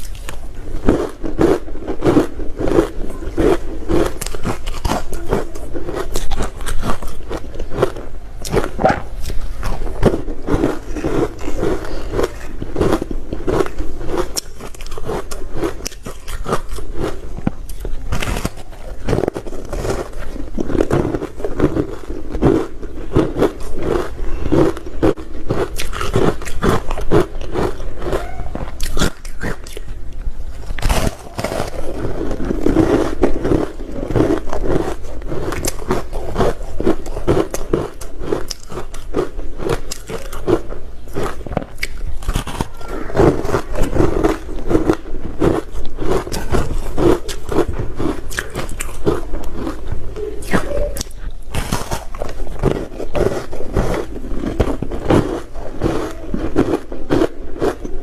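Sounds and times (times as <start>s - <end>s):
person chewing ice: 0.0s - 58.0s.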